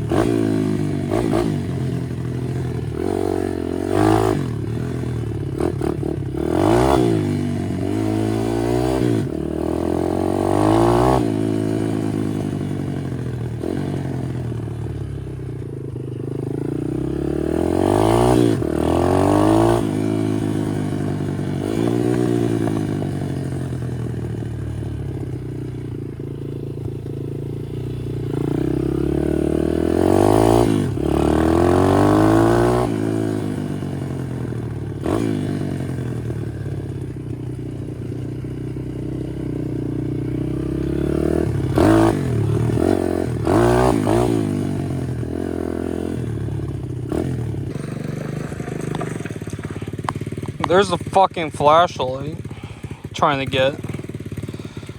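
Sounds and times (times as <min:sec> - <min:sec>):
small motorbike engine revving: 0:00.0 - 0:54.9.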